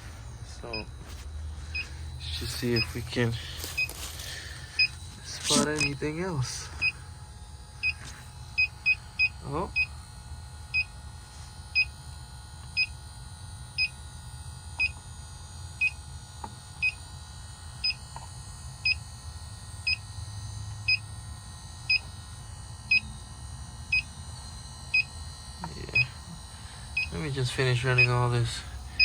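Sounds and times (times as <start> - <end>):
leak detector beeping: 0.0 - 7.1, 7.8 - 10.0, 24.8 - 29.0
low steady hum: 0.0 - 11.1, 25.6 - 29.0.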